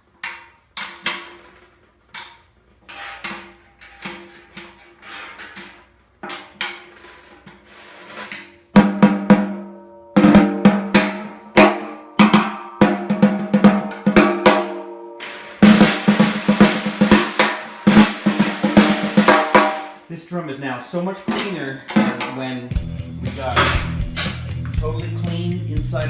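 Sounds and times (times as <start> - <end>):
snare drum hits: 13.7 - 20.0.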